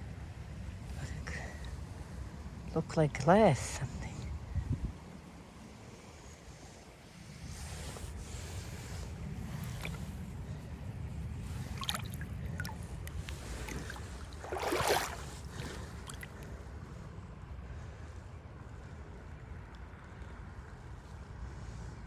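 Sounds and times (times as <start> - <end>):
wind buffeting microphone: 0.0 - 18.5
rustling noise: 7.2 - 10.5.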